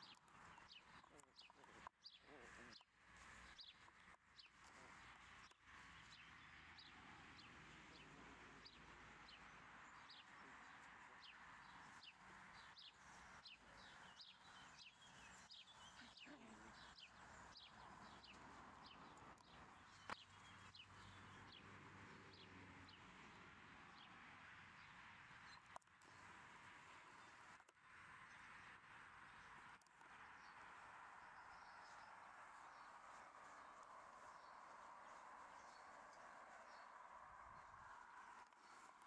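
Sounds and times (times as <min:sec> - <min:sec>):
faint bird chirps: 0:00.0 - 0:21.6.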